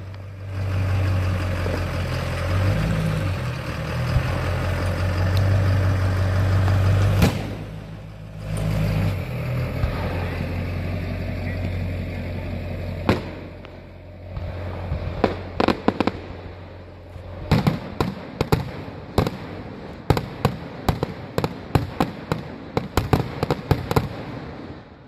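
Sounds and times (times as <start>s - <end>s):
firework shells bursting: 6.7s - 9.2s, 12.9s - 24.4s.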